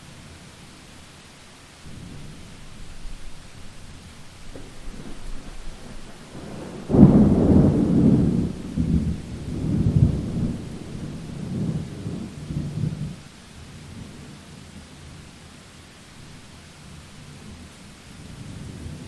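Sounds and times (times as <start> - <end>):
steady rain: 0.0 - 19.0
thunder crack and rumble: 1.9 - 13.2.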